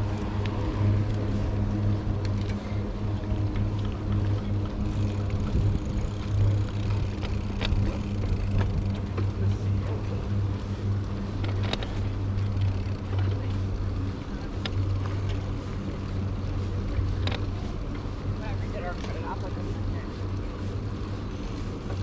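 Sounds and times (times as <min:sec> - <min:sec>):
low engine-like hum: 0:00.0 - 0:22.0.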